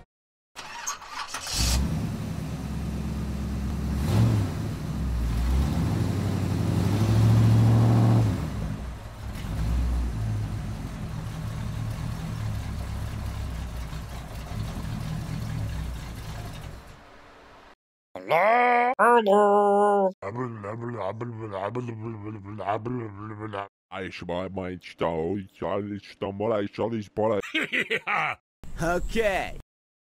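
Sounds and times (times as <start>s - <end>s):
tractor engine starting and running: 0.6s - 17.8s.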